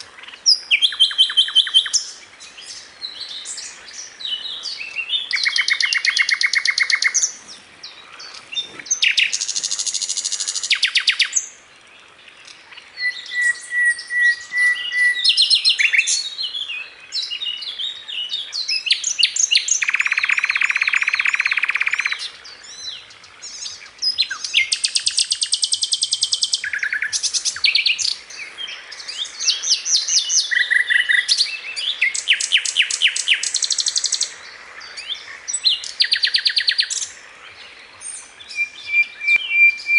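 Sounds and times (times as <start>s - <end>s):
flycatcher singing: 18.6s - 22.2s.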